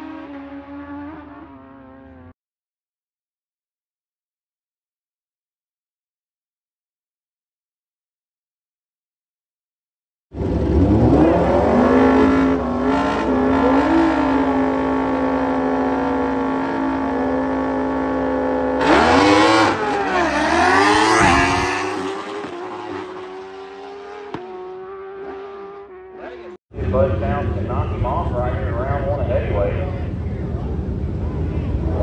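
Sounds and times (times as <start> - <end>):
racing motorcycles passing: 10.4 - 29.2.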